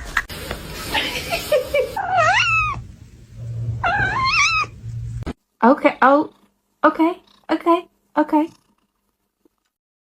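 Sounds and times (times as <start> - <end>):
cat meowing: 2.0 - 2.8, 3.8 - 4.8.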